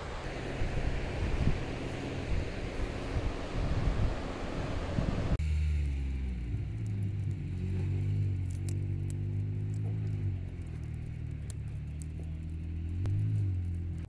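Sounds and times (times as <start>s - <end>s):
car engine humming: 0.0s - 14.0s
faint crackling clicks: 5.8s - 14.0s.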